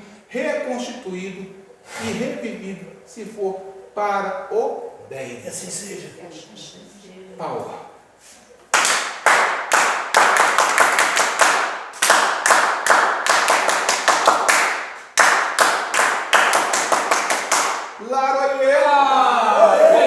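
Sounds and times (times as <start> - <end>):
hands clapping in rhythm: 8.6 - 18.0.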